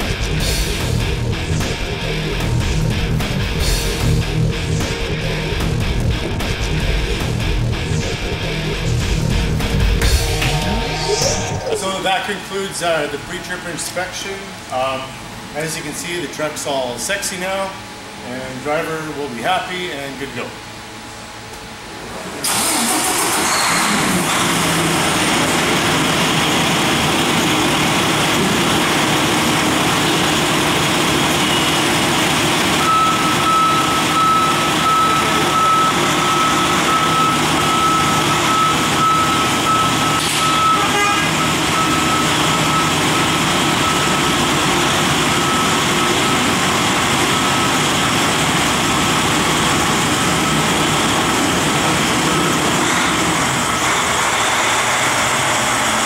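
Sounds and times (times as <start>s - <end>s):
diesel truck engine running: 0.0s - 15.8s, 21.9s - 56.0s
reversing alarm beeping: 31.3s - 52.7s.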